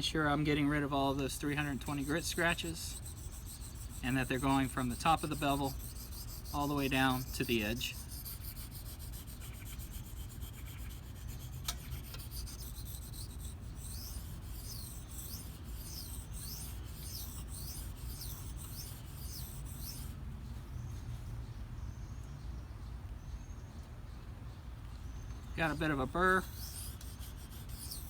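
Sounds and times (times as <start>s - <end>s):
knife scraping on whetstone: 1.4s - 20.1s, 26.4s - 28.0s.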